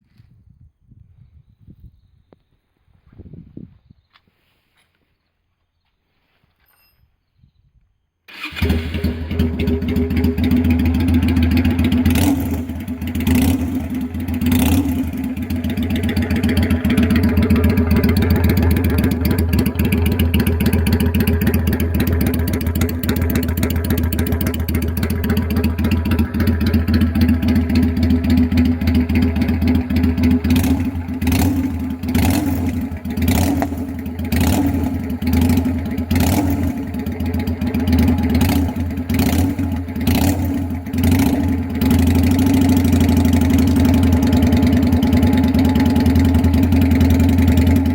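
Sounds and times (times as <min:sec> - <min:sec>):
motorcycle engine idling: 0:08.3 - 0:47.9.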